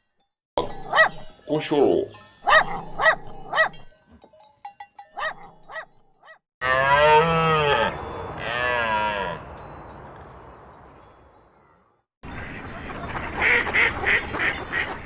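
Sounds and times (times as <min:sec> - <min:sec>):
farm animal calling: 0:00.6 - 0:01.3, 0:02.4 - 0:03.9, 0:05.2 - 0:09.4.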